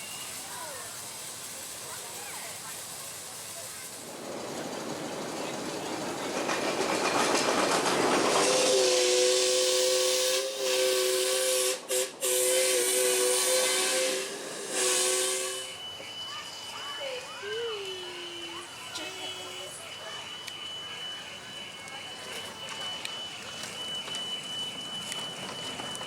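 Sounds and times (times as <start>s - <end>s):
steam hissing: 0.0s - 26.0s
steam whistle two-note chord: 8.5s - 15.8s.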